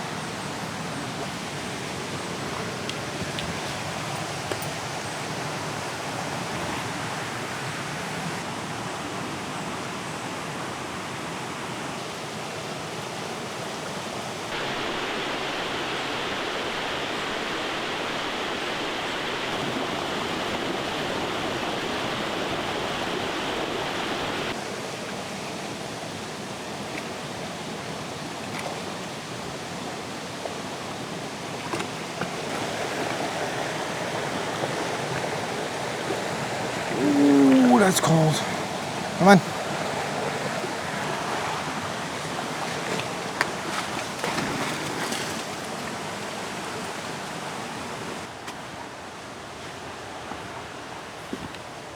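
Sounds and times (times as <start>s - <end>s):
stream flowing over rocks: 14.5s - 24.6s, 32.4s - 48.1s.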